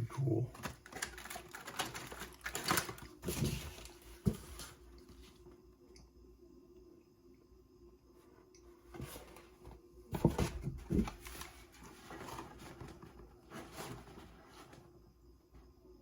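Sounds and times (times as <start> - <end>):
plastic parts rustling and clacking: 0.5 - 4.4.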